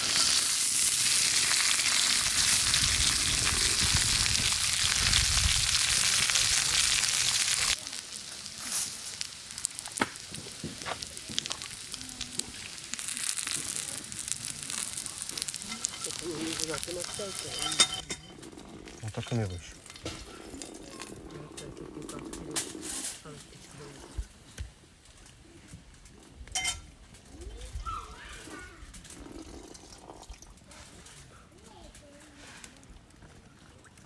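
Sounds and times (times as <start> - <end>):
crackles and pops: 0.0 - 18.1, 19.2 - 23.2
food sizzling over fire: 0.0 - 24.4.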